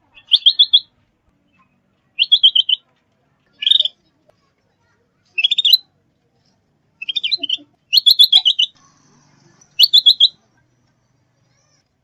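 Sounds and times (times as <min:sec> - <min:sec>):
bird chirping: 0:00.0 - 0:00.9, 0:01.6 - 0:02.8, 0:03.6 - 0:04.0, 0:05.4 - 0:05.8, 0:07.0 - 0:08.8, 0:09.7 - 0:10.4.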